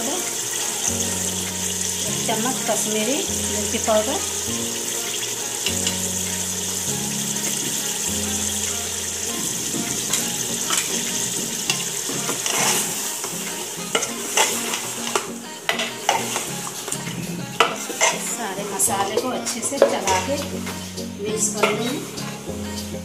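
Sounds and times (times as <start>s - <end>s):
meat sizzling in a pot: 0.0s - 22.5s
metal ladle scraping a pot: 7.7s - 22.4s.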